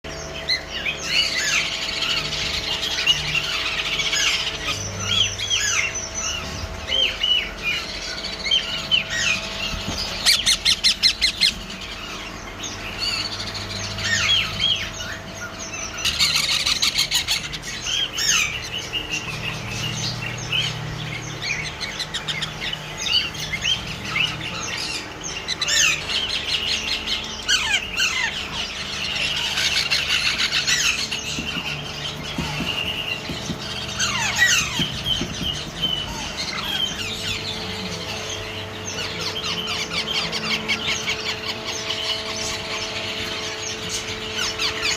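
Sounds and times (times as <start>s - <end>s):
parrot chicks chirping and squawking: 0.0s - 44.9s.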